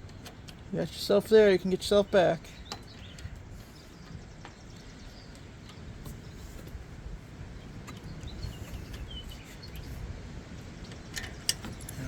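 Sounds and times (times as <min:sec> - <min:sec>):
bird chirps: 0:02.0 - 0:06.6, 0:07.6 - 0:10.0.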